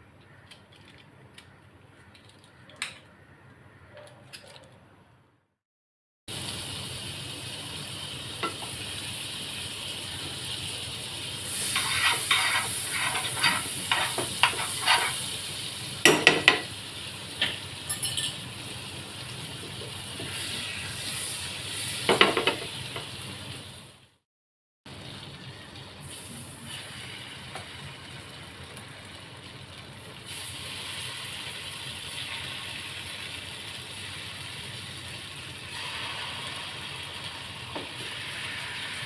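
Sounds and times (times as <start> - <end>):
chicken sizzling in hot oil: 6.3 - 24.1, 24.9 - 39.0
spoon scraping and clinking pan: 11.7 - 15.3, 17.9 - 18.4.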